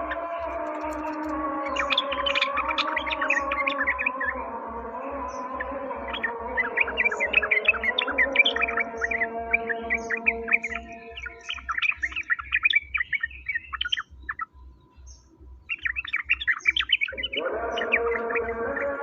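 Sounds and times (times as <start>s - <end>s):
songbirds chirping and twittering: 0.0s - 19.0s.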